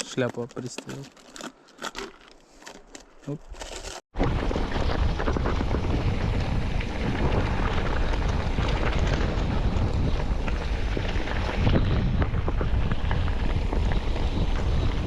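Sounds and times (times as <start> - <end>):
wind buffeting microphone: 4.2 - 15.0.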